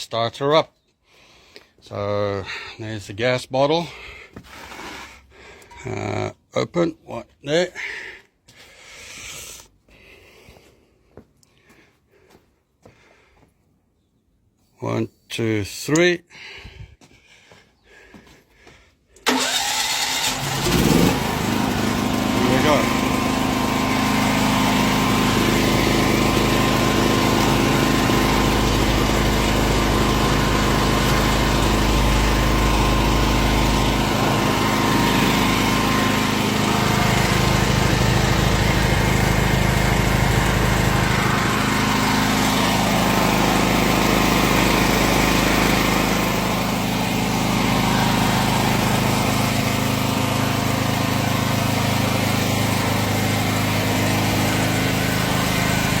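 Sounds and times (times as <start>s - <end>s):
generator engine running: 19.2s - 56.0s.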